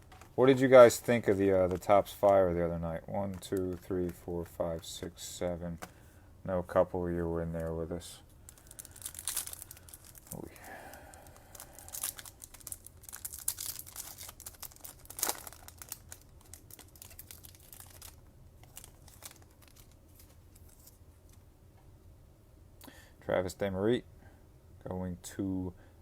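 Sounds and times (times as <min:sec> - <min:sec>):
sharp crack of foil: 0:08.5 - 0:10.4, 0:11.1 - 0:20.0
foil wrapper tearing and crinkling: 0:08.5 - 0:21.0.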